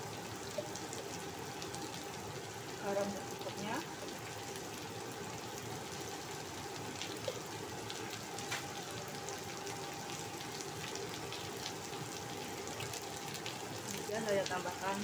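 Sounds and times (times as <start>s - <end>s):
small crackles: 6.7s - 15.0s.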